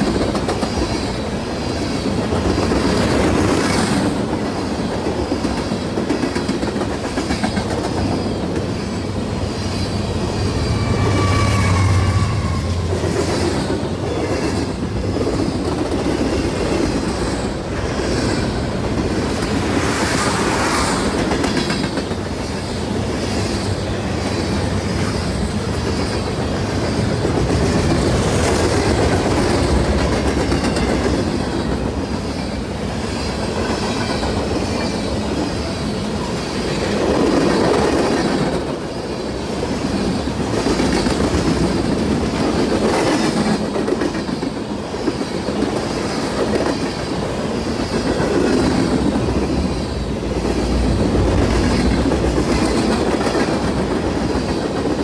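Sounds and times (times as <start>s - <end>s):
freight train cars rolling past: 0.0s - 55.0s
wheels clacking over rail joints: 24.7s - 32.0s, 40.0s - 55.0s.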